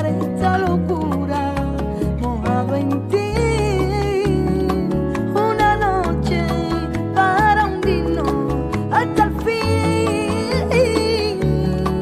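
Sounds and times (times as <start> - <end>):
plucked guitar: 0.0 - 12.0
pulsing bass: 0.0 - 12.0.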